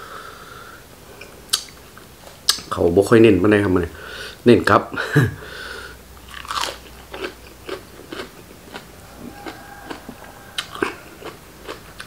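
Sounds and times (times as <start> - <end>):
wet crunchy chewing: 6.2 - 12.0.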